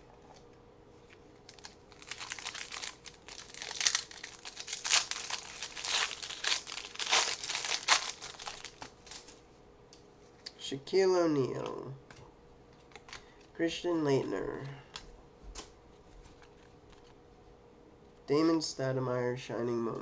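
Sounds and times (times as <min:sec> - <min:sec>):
card pack wrapper crinkling and tearing: 0:01.4 - 0:09.4.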